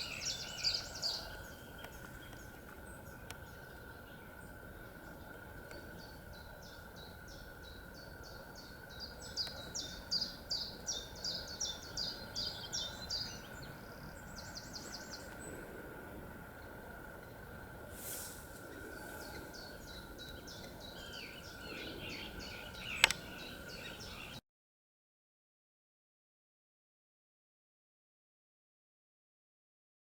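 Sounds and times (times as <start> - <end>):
songbird singing high notes: 18.9 - 24.4.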